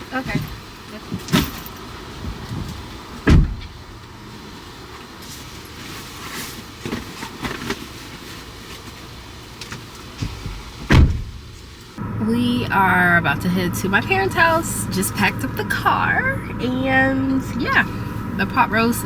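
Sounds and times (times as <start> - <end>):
car door thumping shut: 3.2 - 3.8, 10.2 - 11.5.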